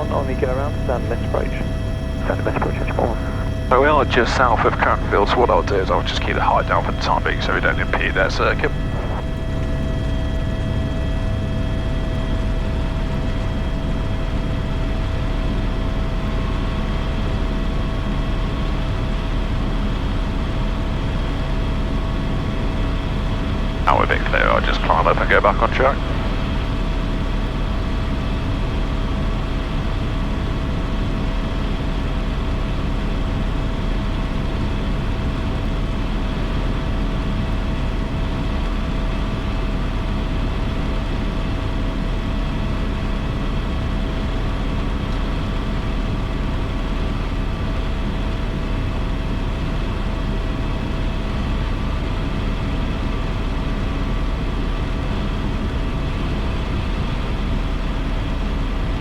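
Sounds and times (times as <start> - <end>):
constant whining tones: 0.0 - 19.0, 21.2 - 30.0
helicopter rotor and turbine drone: 0.0 - 59.0.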